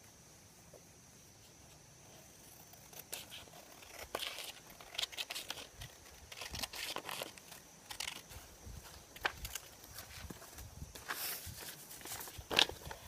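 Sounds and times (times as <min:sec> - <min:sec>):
paper rustling and crackling: 0:02.9 - 0:13.0.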